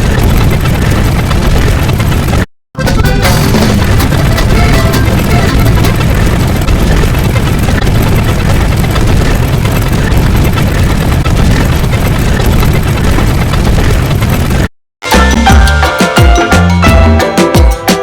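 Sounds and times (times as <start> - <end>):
loud rumbling roar: 0.0 - 2.5.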